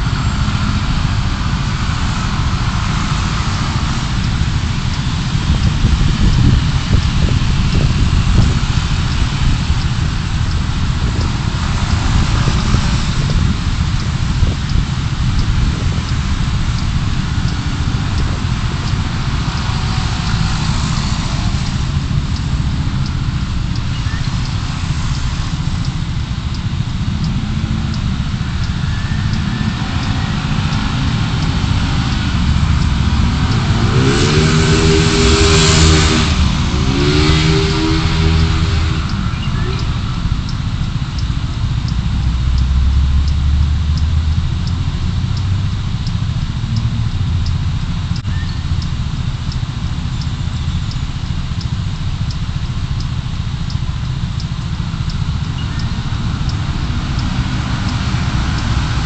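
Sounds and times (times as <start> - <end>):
car engine and tyre noise: 0.0 - 59.0
vehicle engine revving: 0.0 - 59.0
faint ticks: 5.9 - 33.7, 39.0 - 59.0.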